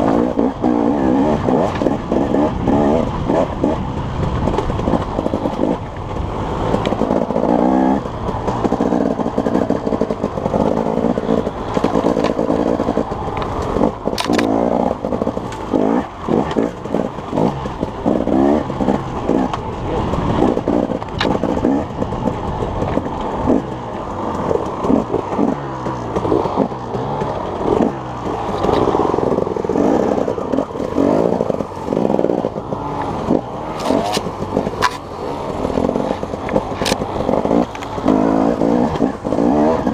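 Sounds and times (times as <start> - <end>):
engine revving: 0.0 - 39.9
sharp clicks: 11.7 - 15.7.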